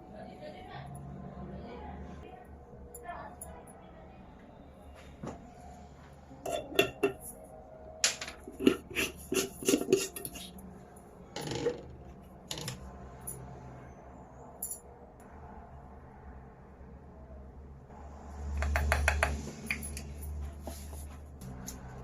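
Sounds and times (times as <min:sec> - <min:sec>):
dishes and cutlery clinking: 0:06.4 - 0:07.3, 0:08.0 - 0:10.5.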